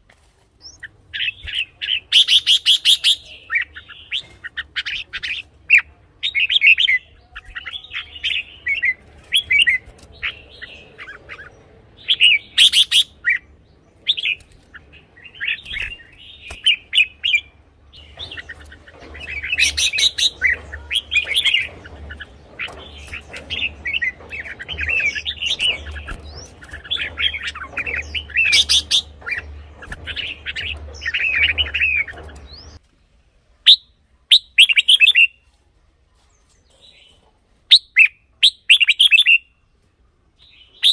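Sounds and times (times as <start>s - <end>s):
bird singing whistled phrases: 33.7s - 35.4s, 37.7s - 39.5s, 40.7s - 40.9s.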